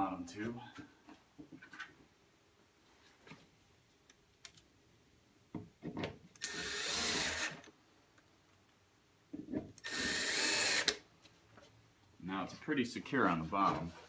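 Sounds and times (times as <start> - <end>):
cordless drill driving screw: 6.4 - 7.7, 9.8 - 11.0.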